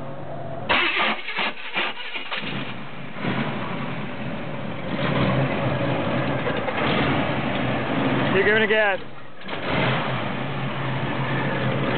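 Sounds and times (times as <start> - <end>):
starter motor cranking: 0.7 - 2.6
car engine running: 2.1 - 11.9.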